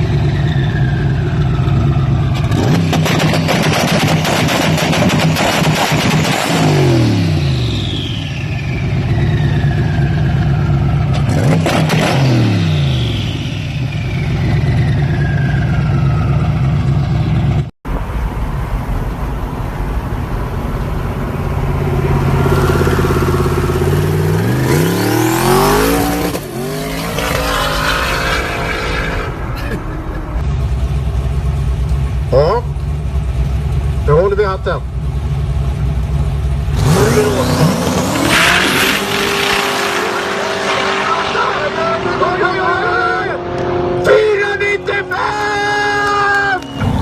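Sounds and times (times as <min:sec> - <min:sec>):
car engine revving: 0:00.0 - 0:16.9, 0:18.7 - 0:47.0
car engine running hard: 0:14.0 - 0:47.0.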